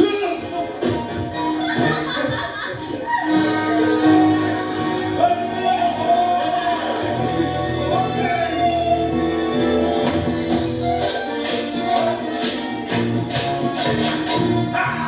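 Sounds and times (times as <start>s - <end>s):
voices singing along: 0.0s - 9.4s
up-tempo show tune accompaniment: 0.0s - 15.0s.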